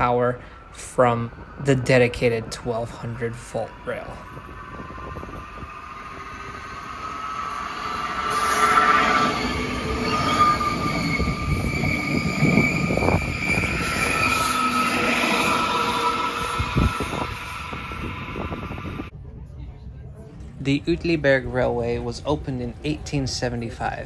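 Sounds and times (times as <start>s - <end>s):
electric train passing: 0.0s - 19.1s
steady high whine: 0.0s - 19.1s
wheels rumbling on rails: 0.0s - 19.1s.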